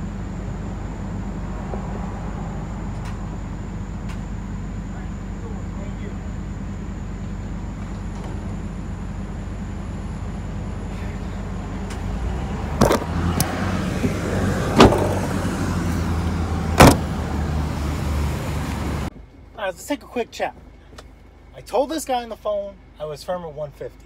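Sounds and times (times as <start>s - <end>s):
vehicle engine idling: 0.0s - 24.0s
sharp thumps: 12.8s - 15.3s, 16.8s - 17.2s.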